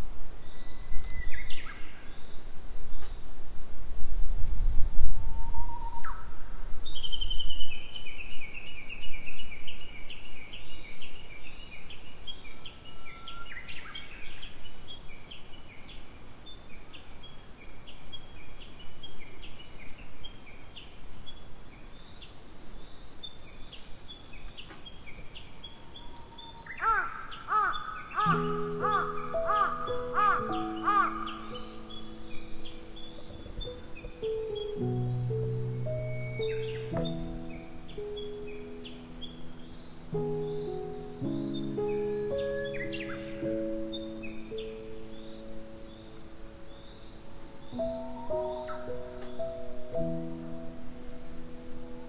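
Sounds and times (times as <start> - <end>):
wild birds singing: 0.0 - 3.5, 4.6 - 52.0
music: 28.2 - 52.0.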